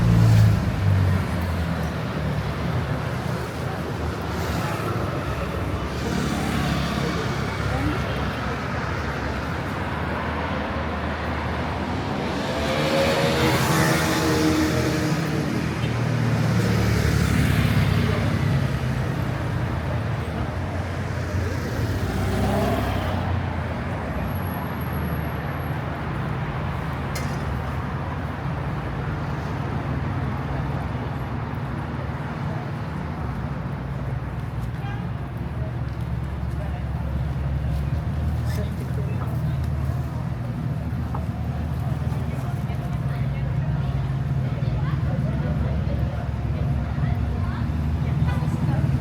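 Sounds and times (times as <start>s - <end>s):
street traffic hum: 0.0s - 49.0s
vehicles passing close by: 0.0s - 49.0s.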